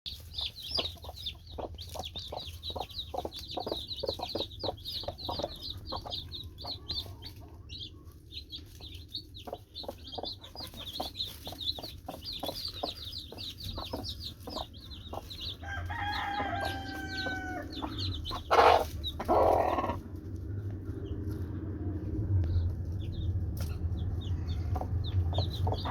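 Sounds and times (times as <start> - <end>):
chickens clucking: 0.1 - 25.9
chicks peeping: 0.1 - 25.9
chicken drawn-out call: 15.6 - 20.1.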